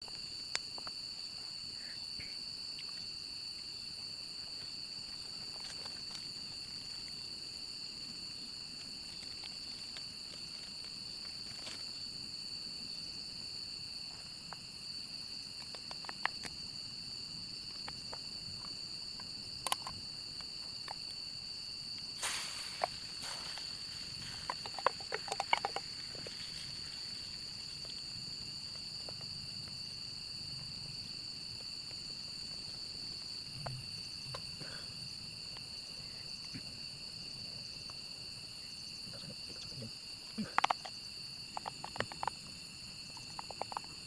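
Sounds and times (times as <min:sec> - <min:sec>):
insects chorus ringing: 0:00.0 - 0:44.0
sharp clicks and knocks: 0:24.3 - 0:26.4.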